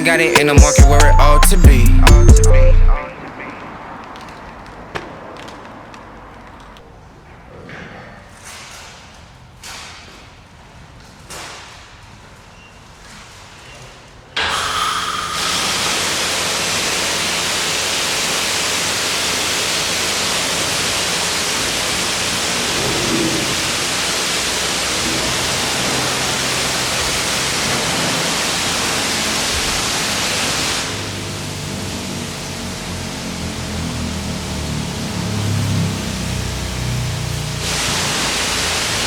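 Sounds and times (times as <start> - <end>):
high-pressure water spray hiss: 14.4 - 39.0.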